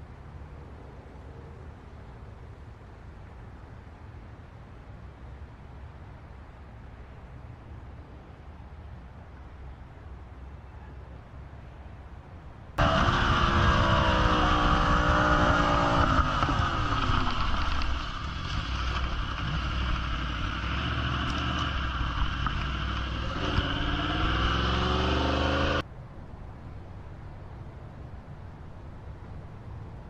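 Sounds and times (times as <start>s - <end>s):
road noise: 0.0s - 30.0s
wind noise: 12.7s - 30.0s
vehicle engine running: 12.8s - 25.8s.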